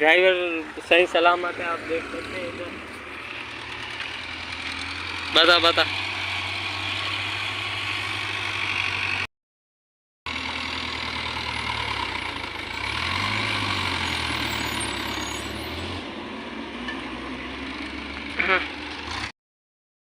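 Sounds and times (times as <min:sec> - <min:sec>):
vehicle engine idling: 0:00.0 - 0:09.3, 0:10.3 - 0:13.2.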